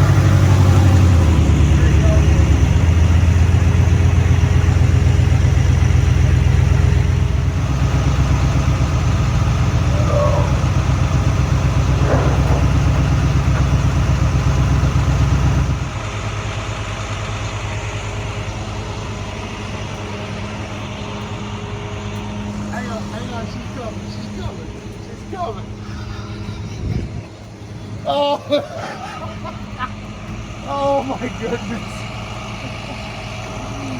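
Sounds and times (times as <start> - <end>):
truck engine idling: 0.0 - 33.9.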